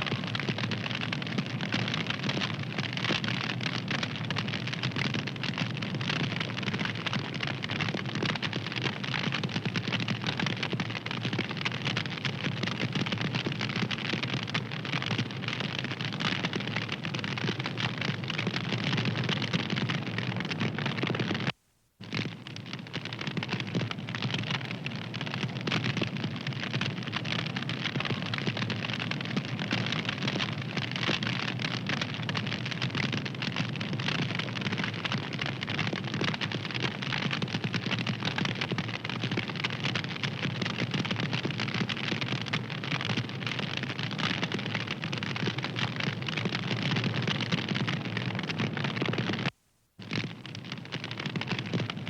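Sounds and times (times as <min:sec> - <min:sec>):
fire crackling: 0:00.0 - 0:10.2.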